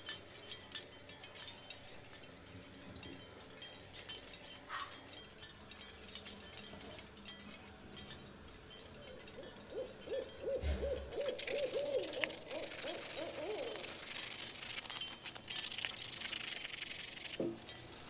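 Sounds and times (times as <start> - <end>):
sandpaper rubbing on metal: 11.4 - 17.4.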